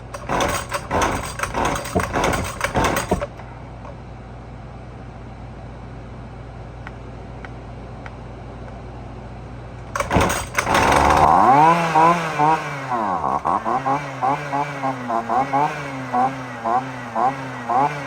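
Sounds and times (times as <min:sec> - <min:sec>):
string trimmer engine revving: 0:00.0 - 0:03.4, 0:10.0 - 0:18.0.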